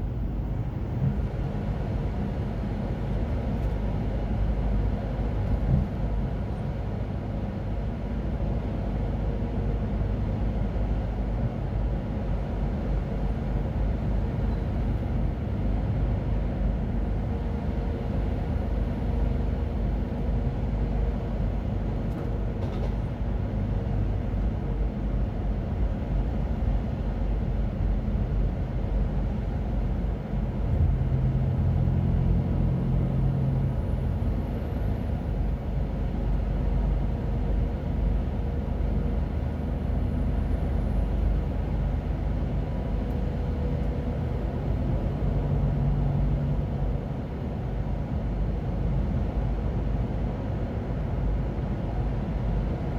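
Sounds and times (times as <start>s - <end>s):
diesel truck engine rumble: 0.0s - 52.9s
deep engine hum: 23.6s - 52.9s.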